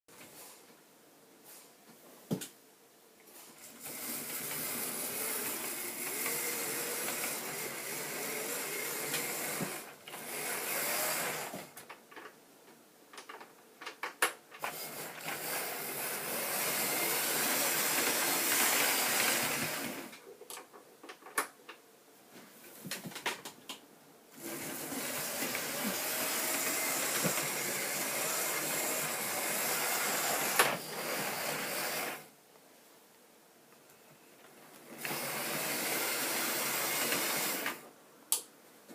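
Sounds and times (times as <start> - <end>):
model train motor whirring: 3.6 - 11.7, 14.6 - 20.2, 24.4 - 32.3, 34.8 - 37.8.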